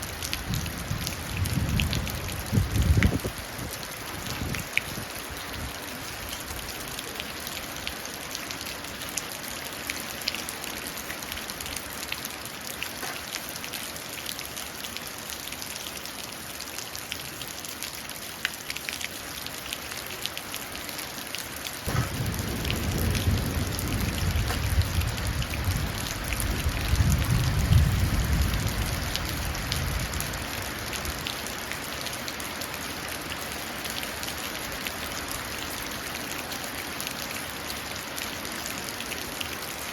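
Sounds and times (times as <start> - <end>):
rain dripping into puddle: 0.0 - 39.9
low rumble of thunder: 0.4 - 3.4, 21.9 - 30.6.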